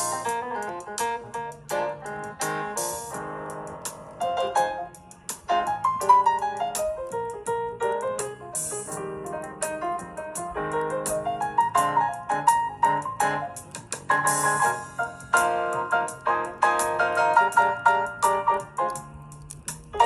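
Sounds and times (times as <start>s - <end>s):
sharp ticks: 0.0s - 14.4s
jazz piano music: 0.0s - 20.0s.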